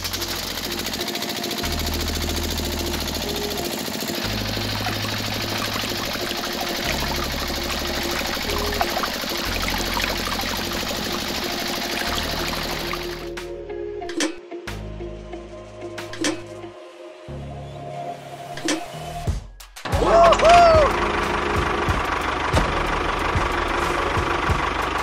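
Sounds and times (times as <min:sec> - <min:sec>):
small electric motor humming: 0:00.0 - 0:13.3
water splashing into bucket: 0:04.7 - 0:13.3.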